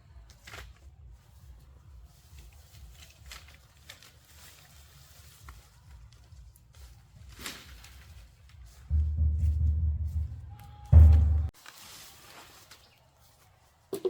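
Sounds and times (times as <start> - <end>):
rustles and light ticks: 0.0 - 10.7, 11.5 - 14.0
low rumble: 8.9 - 11.5.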